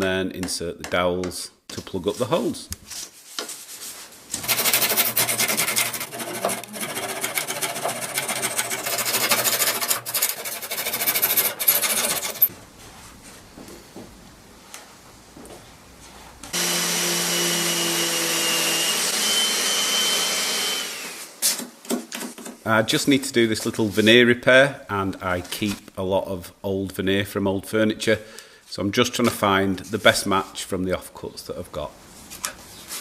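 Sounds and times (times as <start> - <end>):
small power tool running: 4.4 - 10.2, 16.6 - 21.3
hand tool rasping wood: 4.4 - 12.5.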